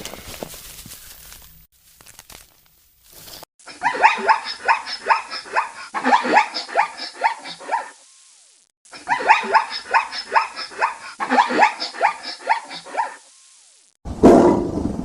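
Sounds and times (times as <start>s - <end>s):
animal barking yelps: 3.7s - 8.0s, 8.9s - 13.2s.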